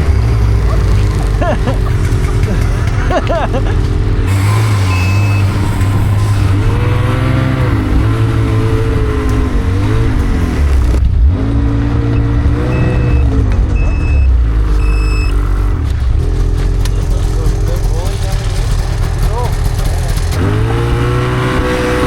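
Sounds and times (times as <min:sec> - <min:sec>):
snowmobile engine revving: 0:00.0 - 0:13.4, 0:17.1 - 0:22.0
short high beeps: 0:04.3 - 0:06.6.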